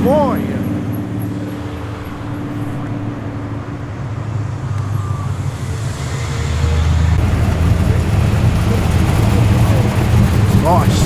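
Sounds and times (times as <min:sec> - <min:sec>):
car engines rumbling: 0:00.0 - 0:11.0.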